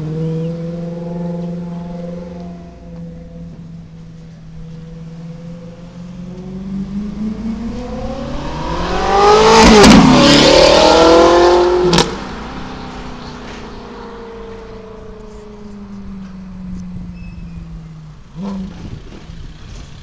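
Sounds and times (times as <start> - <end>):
sports car accelerating past: 0.0 - 19.0.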